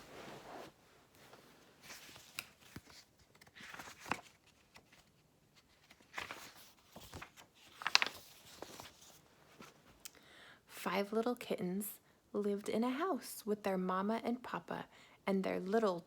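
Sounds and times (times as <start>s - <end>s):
book pages rustling: 0.0s - 10.0s.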